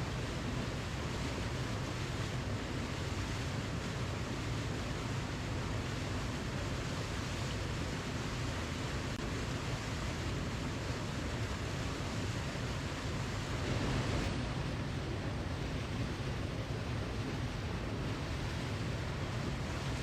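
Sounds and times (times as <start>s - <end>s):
waterfall rushing: 10.7s - 20.0s.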